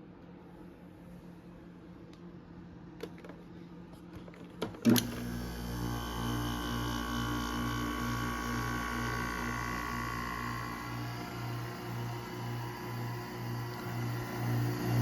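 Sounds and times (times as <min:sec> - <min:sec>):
air conditioner whine: 0:00.0 - 0:15.0.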